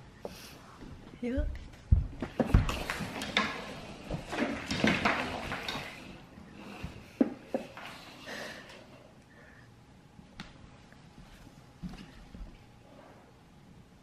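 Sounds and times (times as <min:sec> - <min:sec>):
toy scraping on floor: 0:02.4 - 0:08.4.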